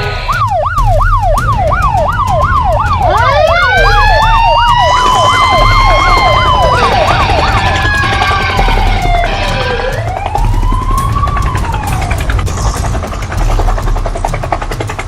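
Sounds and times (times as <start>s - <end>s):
fast yelping siren: 0.0s - 13.2s
wailing siren: 0.0s - 14.1s.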